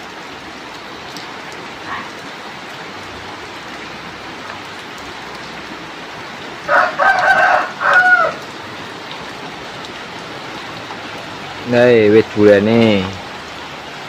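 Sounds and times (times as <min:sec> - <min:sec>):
heavy rain pouring: 0:00.0 - 0:14.0
rooster crowing: 0:06.7 - 0:08.5.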